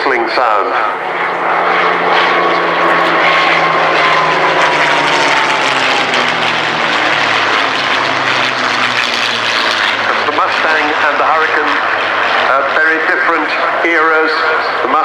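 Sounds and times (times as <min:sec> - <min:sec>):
propeller plane engine fly-past: 0:00.0 - 0:15.0
engine whistle: 0:00.6 - 0:12.6.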